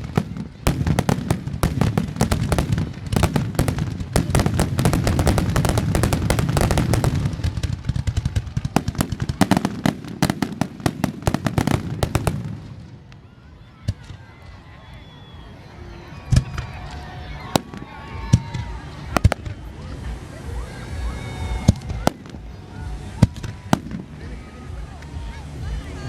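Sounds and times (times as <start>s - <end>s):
firework shell bursts and crackling: 0.0s - 13.2s.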